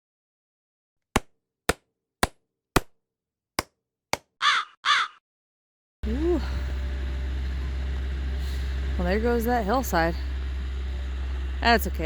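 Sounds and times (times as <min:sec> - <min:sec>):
crow cawing: 0:04.4 - 0:05.2.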